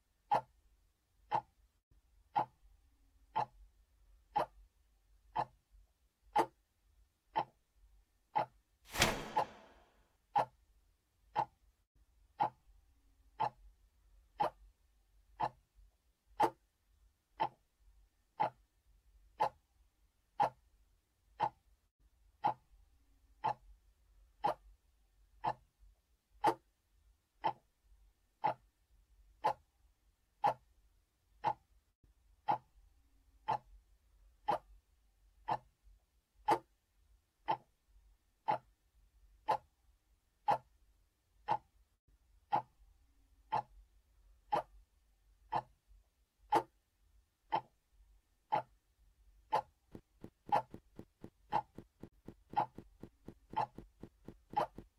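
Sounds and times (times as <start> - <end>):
clock ticking: 0.2 - 9.8, 11.3 - 11.7, 12.3 - 12.7, 13.3 - 14.7, 15.4 - 15.8, 16.4 - 19.7, 20.3 - 21.8, 22.4 - 24.8, 25.4 - 25.8, 26.4 - 26.8, 27.4 - 27.8, 28.4 - 28.8, 29.4 - 29.8, 30.4 - 30.8, 31.4 - 31.8, 32.4 - 32.8, 33.4 - 33.8, 34.4 - 34.8, 35.4 - 35.8, 36.5 - 36.8, 37.4 - 37.8, 38.4 - 38.8, 39.4 - 39.8, 40.4 - 40.8, 41.4 - 41.8, 42.5 - 42.9, 43.5 - 43.9, 44.5 - 44.9, 45.5 - 45.9, 46.5 - 46.8, 47.5 - 47.9, 48.5 - 54.9.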